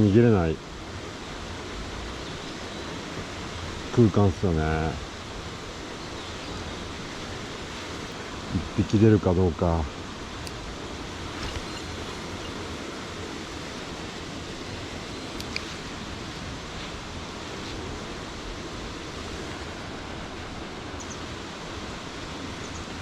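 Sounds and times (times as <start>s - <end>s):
stream water rushing: 0.0s - 23.0s
faint small click: 15.4s - 15.8s.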